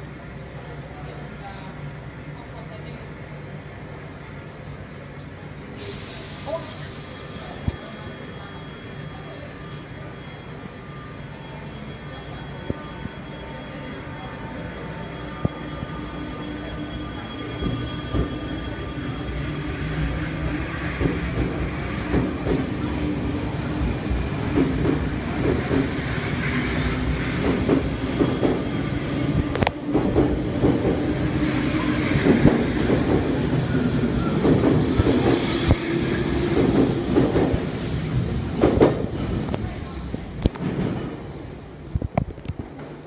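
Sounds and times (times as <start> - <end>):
electric train whine: 6.2 - 38.4
train wheels clattering and rumbling: 17.4 - 43.0.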